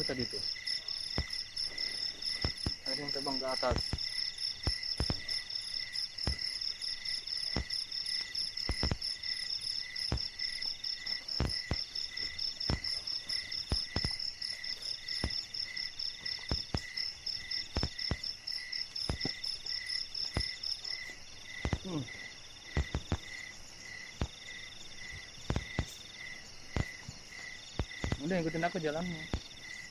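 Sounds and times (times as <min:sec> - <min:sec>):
crickets chirping: 0:00.0 - 0:29.9
insect trilling: 0:00.0 - 0:29.9
sharp clicks or knocks: 0:27.8 - 0:28.3.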